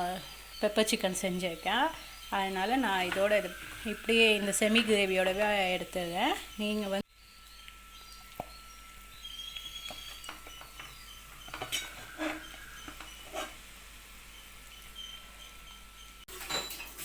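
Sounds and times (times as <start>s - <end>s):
metal spoon scraping a pan: 9.6s - 13.7s.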